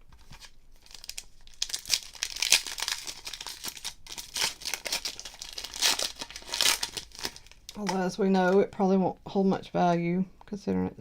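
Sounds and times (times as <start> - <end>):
plastic wrappers crinkling: 0.0 - 8.7.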